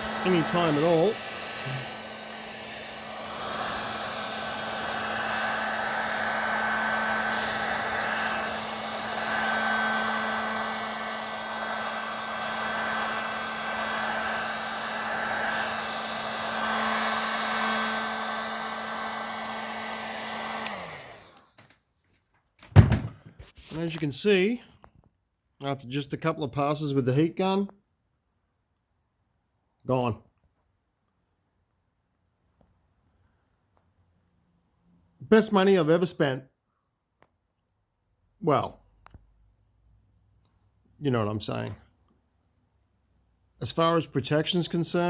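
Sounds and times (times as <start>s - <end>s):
motor winding down: 0.0s - 21.7s
heat gun fan humming: 0.0s - 21.8s.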